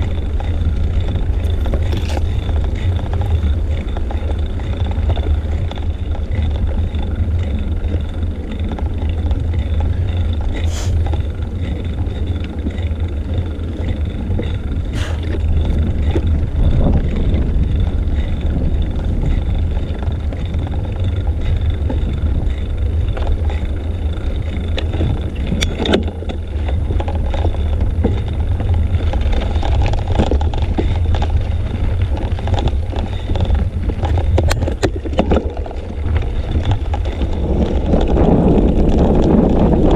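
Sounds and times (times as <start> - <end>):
tyre and road noise: 0.0 - 39.9
wind buffeting microphone: 0.0 - 39.9.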